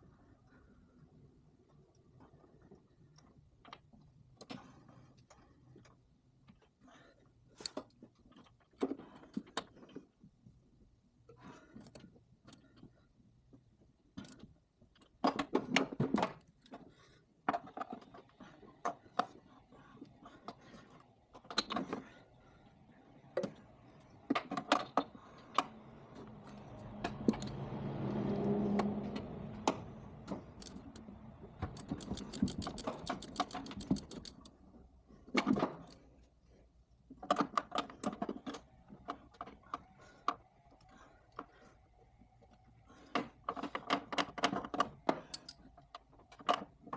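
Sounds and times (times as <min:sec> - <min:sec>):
rapid clicks: 0:29.6 - 0:34.6.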